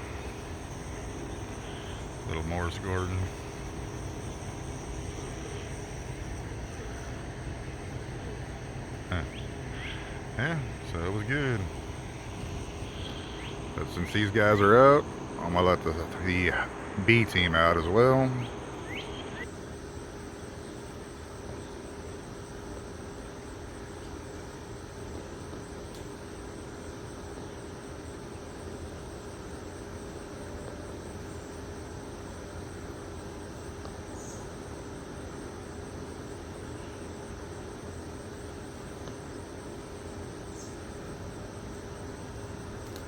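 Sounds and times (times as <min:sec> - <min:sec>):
low hum: 0:00.0 - 0:19.5
crickets trilling: 0:00.0 - 0:43.0.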